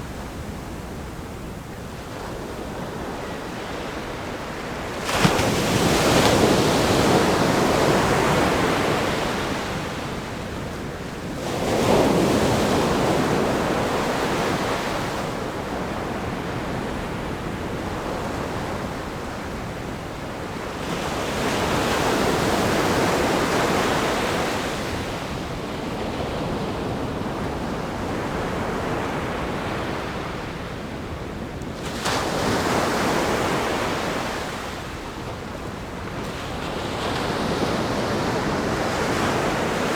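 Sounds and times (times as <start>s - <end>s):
ocean waves breaking on rocks: 3.6s - 10.3s.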